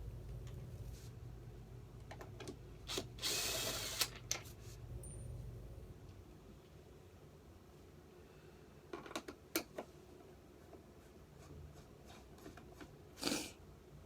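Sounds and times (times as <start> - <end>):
plastic parts clicking and knocking: 8.9 - 9.9.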